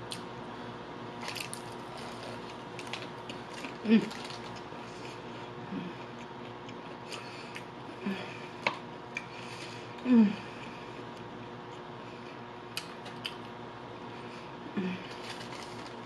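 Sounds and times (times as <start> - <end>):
chewing fried food: 1.2 - 5.3
person humming mmm: 3.6 - 4.5, 10.0 - 10.6, 14.7 - 15.4.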